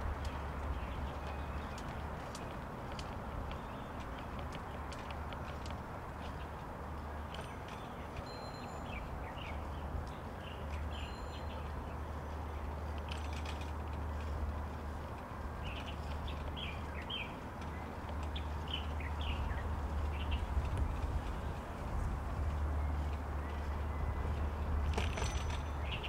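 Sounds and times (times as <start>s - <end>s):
small birds chirping: 0.1s - 5.6s, 6.2s - 24.9s
steady low rumble: 13.8s - 25.0s.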